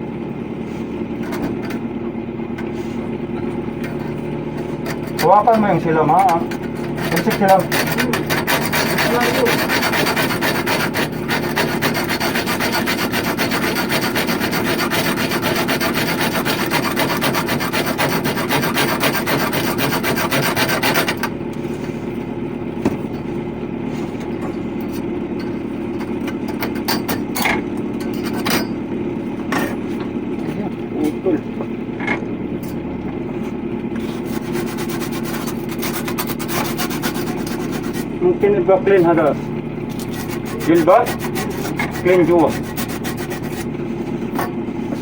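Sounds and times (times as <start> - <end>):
steady low hum: 0.0 - 45.0
rasping on copper pipe: 3.9 - 21.3, 24.9 - 28.7, 34.0 - 38.2, 39.9 - 45.0.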